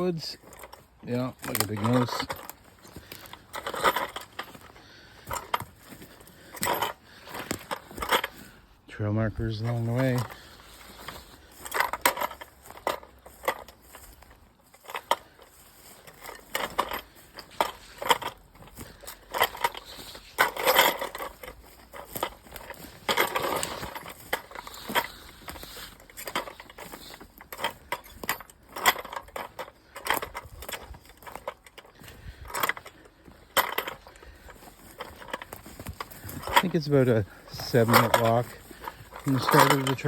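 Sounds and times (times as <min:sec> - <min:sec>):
footsteps crunching on trail: 0:00.0 - 0:40.0
noisemaker rattling: 0:00.0 - 0:40.0
brushing rustles: 0:09.4 - 0:40.0.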